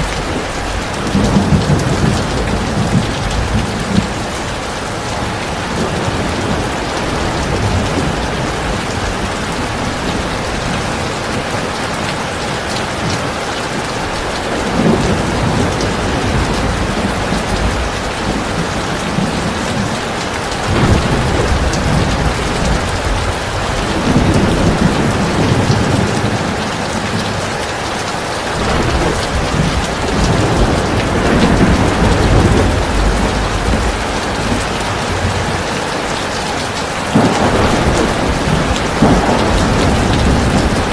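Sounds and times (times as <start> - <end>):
thunder rolling: 0.0 - 11.5, 14.1 - 20.0, 20.6 - 27.4, 28.6 - 36.4, 37.1 - 40.9
heavy rain pouring: 0.0 - 40.9.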